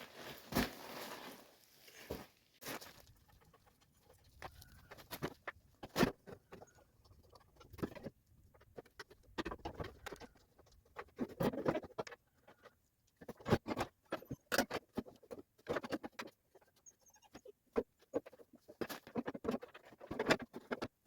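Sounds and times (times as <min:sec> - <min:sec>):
scraping and rustling: 0:00.0 - 0:12.6.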